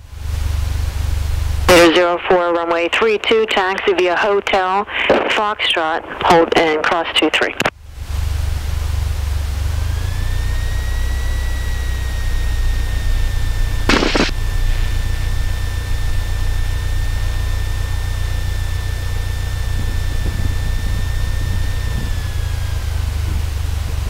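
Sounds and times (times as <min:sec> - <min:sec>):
aircraft engine and propeller drone: 0:00.0 - 0:24.0
steady high whine: 0:00.0 - 0:24.0
static hiss burst: 0:13.8 - 0:16.6.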